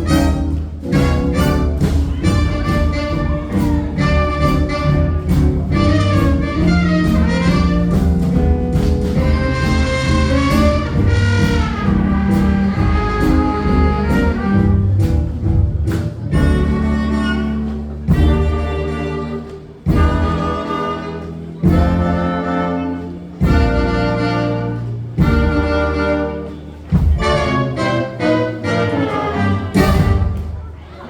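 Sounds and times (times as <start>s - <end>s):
drum and cymbal hits: 0.0s - 17.0s
horn melody: 0.0s - 30.7s
walking double bass: 0.0s - 30.9s.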